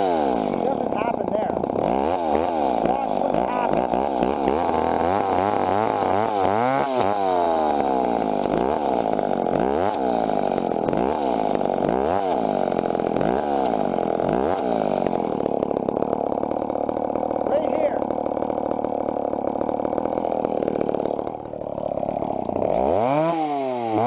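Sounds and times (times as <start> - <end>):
chainsaw running hard: 0.0 - 24.0.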